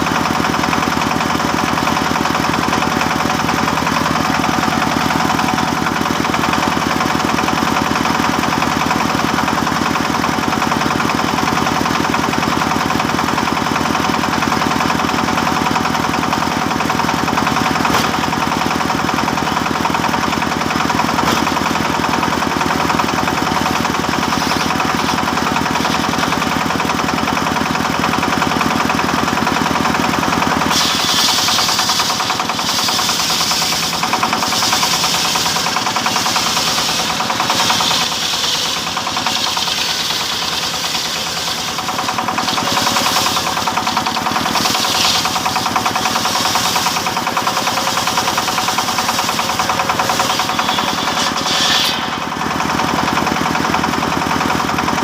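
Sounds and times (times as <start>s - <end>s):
sawmill machinery sawing timber: 0.0s - 55.0s
pulsing high hiss: 48.1s - 52.4s.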